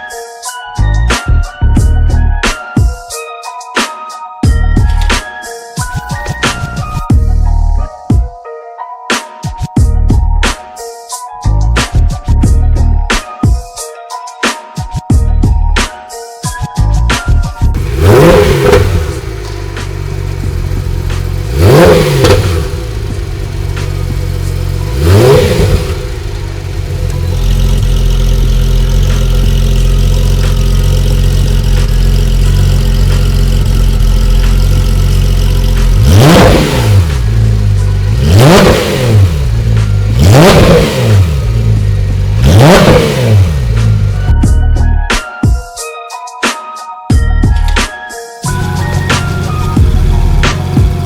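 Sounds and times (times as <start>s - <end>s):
music: 0.0s - 51.0s
car engine idling and revving: 4.5s - 7.8s, 17.2s - 44.9s, 48.5s - 51.0s.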